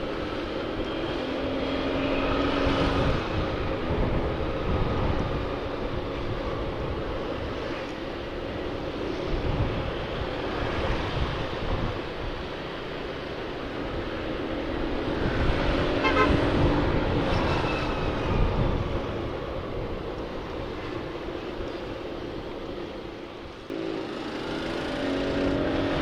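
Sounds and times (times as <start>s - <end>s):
wind buffeting microphone: 0.1s - 23.7s
motorcycle engine running: 23.7s - 26.0s.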